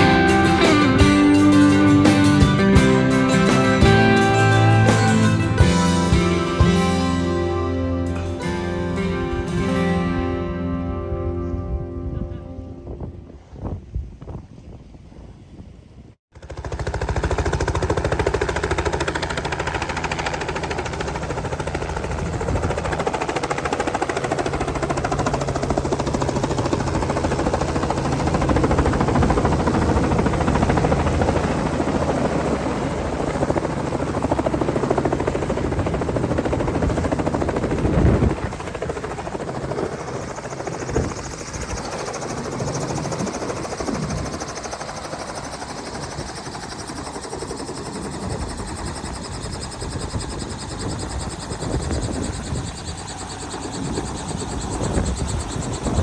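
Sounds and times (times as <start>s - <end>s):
helicopter rotor drone: 0.0s - 9.5s, 16.3s - 56.0s.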